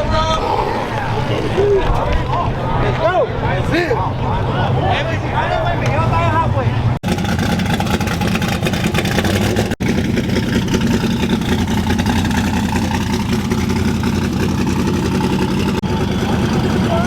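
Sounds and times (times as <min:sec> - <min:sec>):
drag truck engine: 0:04.0 - 0:17.0.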